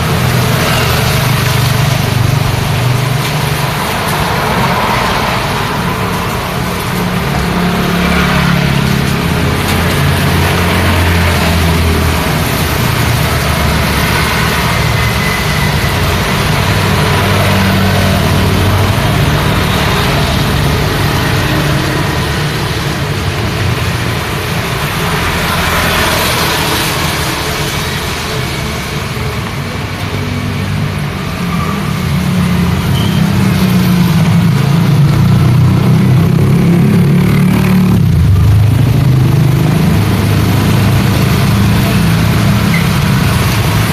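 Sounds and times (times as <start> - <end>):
rain and wet road hiss: 0.0 - 31.4
car and motorbike engines: 0.0 - 43.9
vehicle passing: 0.0 - 43.9.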